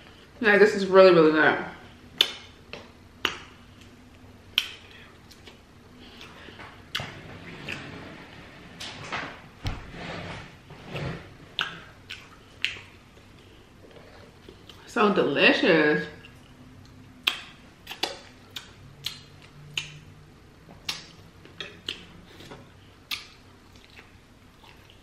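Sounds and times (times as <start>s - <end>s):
chewing with wet mouth clicks: 4.5s - 5.6s, 11.6s - 14.8s, 16.2s - 20.1s, 20.8s - 25.0s.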